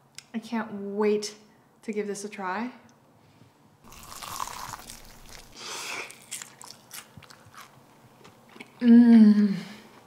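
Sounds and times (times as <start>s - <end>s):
crunching fried chicken: 3.9s - 8.8s.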